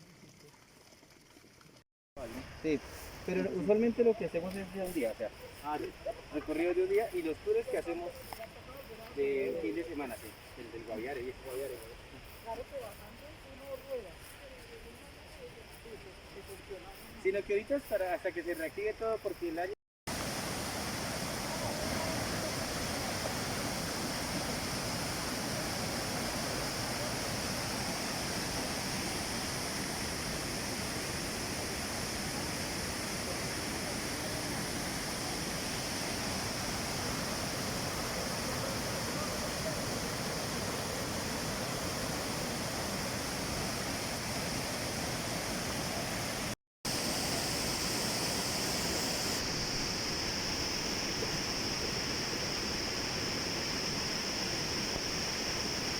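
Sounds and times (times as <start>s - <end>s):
rushing water: 20.1s - 55.9s.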